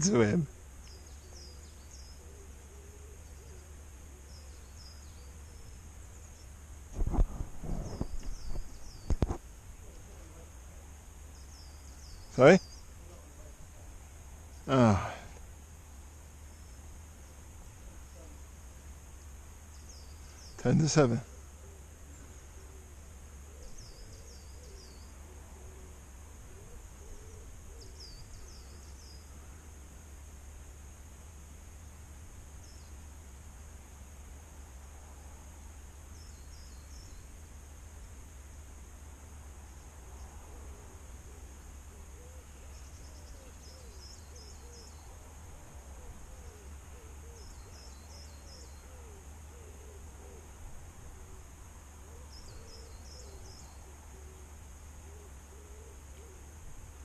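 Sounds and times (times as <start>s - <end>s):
small bird chirping: 0.0s - 10.4s, 11.2s - 13.5s, 19.1s - 22.7s, 23.5s - 25.2s, 26.5s - 29.5s, 32.6s - 33.0s, 36.1s - 37.4s, 42.0s - 45.2s, 46.0s - 50.5s, 52.2s - 54.3s
low wavering cooing call: 1.0s - 5.8s, 21.2s - 29.5s, 40.4s - 45.2s, 45.8s - 56.6s
steady low rumble: 6.3s - 10.8s.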